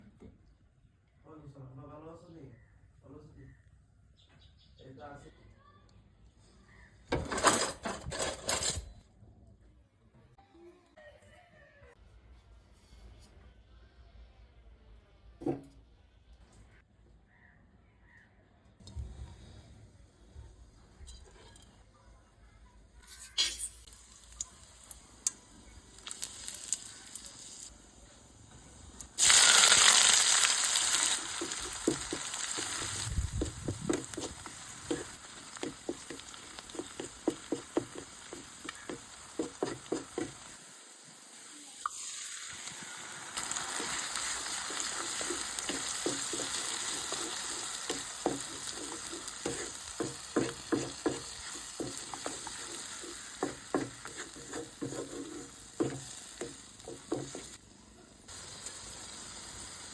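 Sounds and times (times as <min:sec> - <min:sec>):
food sizzling in hot oil: 0:23.2 - 0:57.6, 0:58.2 - 0:59.9
spatula scraping and tapping pan: 0:31.3 - 0:40.6, 0:43.6 - 0:57.6.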